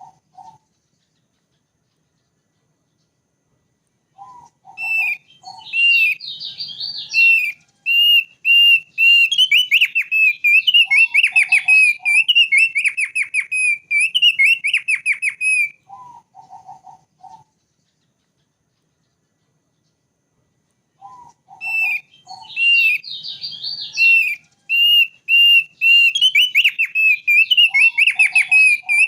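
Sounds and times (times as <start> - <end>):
clusters of lower bird notes: 0.0 - 29.0
bird singing high whistled notes: 4.2 - 17.6, 21.0 - 29.0.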